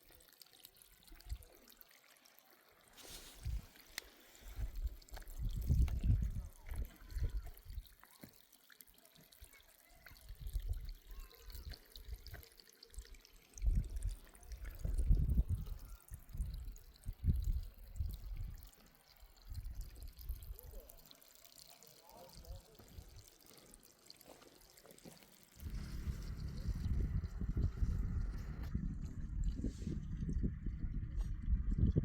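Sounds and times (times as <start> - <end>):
water trickling: 0.0 - 32.0
low rumbles: 25.6 - 32.0.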